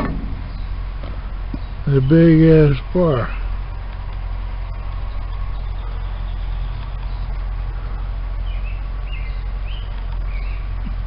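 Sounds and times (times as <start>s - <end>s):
bird chirping: 0.0s - 11.0s
engine idling: 0.0s - 11.0s.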